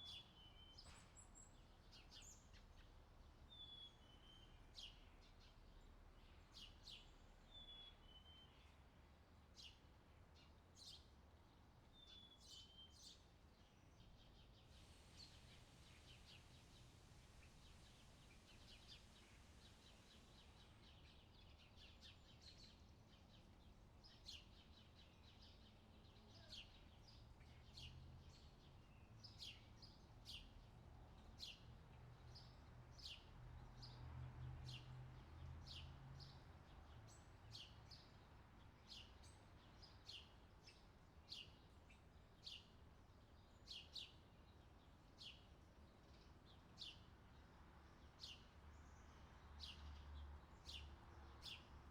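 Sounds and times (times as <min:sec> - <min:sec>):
small birds chirping: 0:34.7 - 0:51.9.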